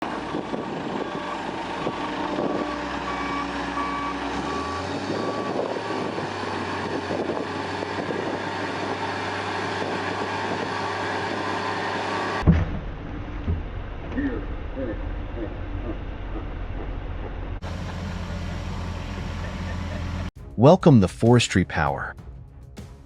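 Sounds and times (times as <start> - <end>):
diesel engine running: 0.0 - 20.4
vehicle back-up alarm beeping: 0.2 - 8.9
loud thump: 12.4 - 13.7.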